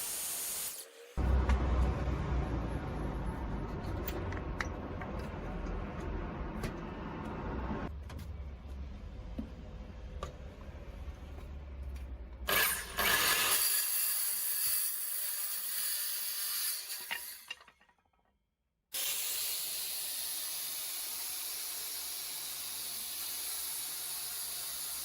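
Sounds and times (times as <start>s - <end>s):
motor rumbling: 1.2s - 7.9s.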